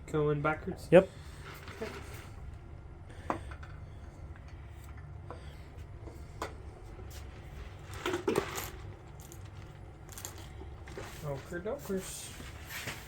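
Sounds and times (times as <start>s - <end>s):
low steady hum: 0.0s - 13.0s
metal parts clattering: 7.7s - 11.6s.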